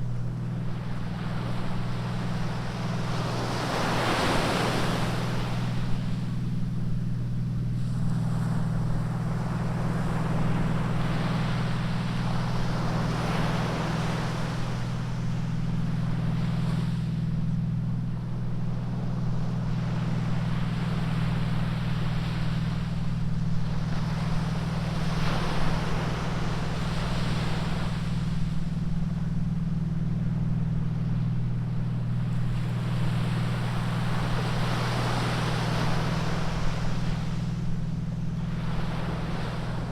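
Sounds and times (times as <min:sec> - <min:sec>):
ocean surf washing ashore: 0:00.0 - 0:39.9
steady low hum: 0:00.0 - 0:39.9.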